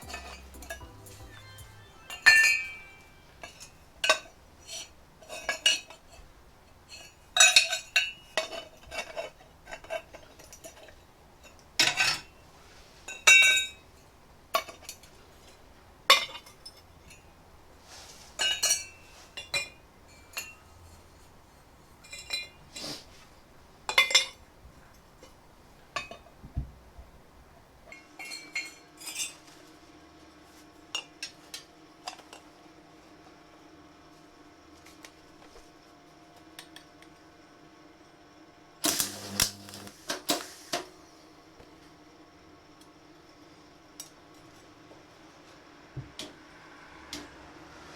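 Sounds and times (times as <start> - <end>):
steady hum with tones: 0.0 - 5.2.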